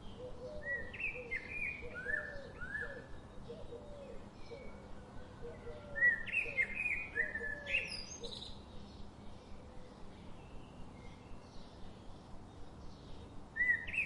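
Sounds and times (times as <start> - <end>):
faint bird calls: 0.0 - 8.6
songbird chirps and whistles: 13.6 - 14.0.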